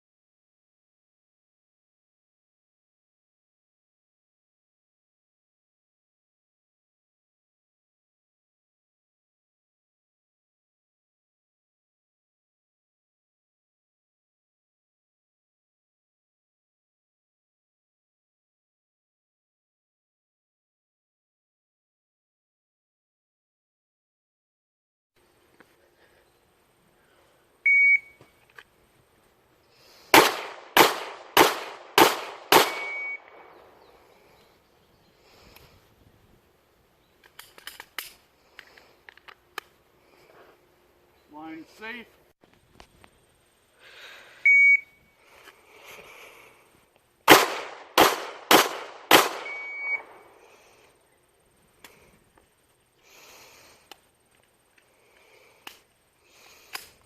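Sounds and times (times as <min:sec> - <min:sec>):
electronic beep: 0:27.7 - 0:28.2, 0:32.8 - 0:33.3, 0:44.5 - 0:45.0, 0:49.4 - 0:50.1
pistol shots: 0:30.1 - 0:33.5, 0:47.3 - 0:50.3.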